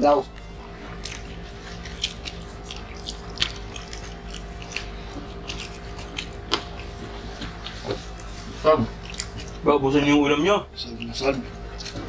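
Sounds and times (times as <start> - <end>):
people chewing food: 0.0 - 12.0
steady low hum: 0.0 - 12.0
wet mouth clicks and smacks: 1.8 - 8.3.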